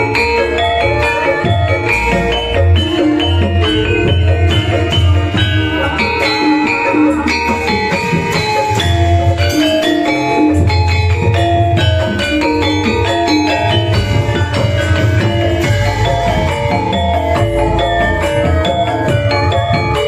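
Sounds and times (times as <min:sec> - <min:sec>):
metallophones and gongs: 0:00.0 - 0:20.0
deep drum beat: 0:10.6 - 0:20.0.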